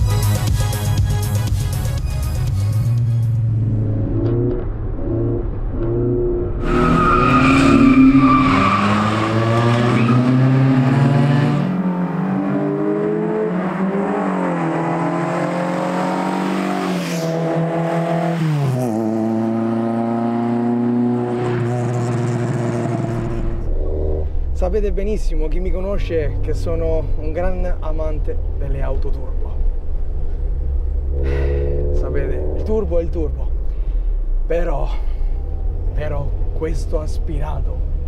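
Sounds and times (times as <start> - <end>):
car engine accelerating hard: 3.3 - 24.4, 30.0 - 33.5.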